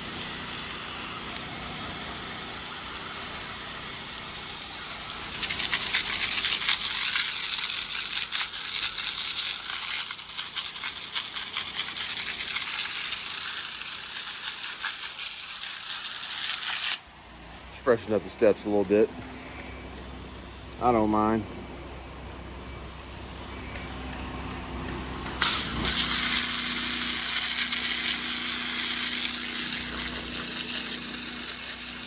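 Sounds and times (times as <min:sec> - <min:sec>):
pressure washer spraying: 0:00.0 - 0:17.1, 0:25.4 - 0:32.0.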